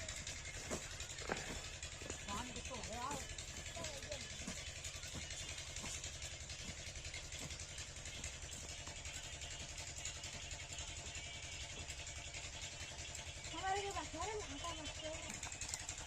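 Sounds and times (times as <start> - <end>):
diesel pump engine running: 0.0 - 16.0.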